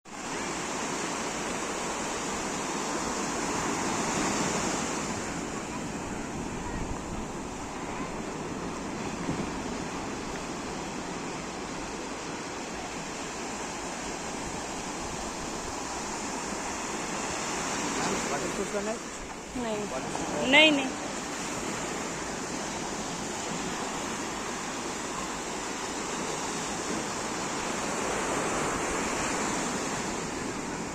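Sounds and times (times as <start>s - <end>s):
sea waves washing in: 0.1s - 30.9s.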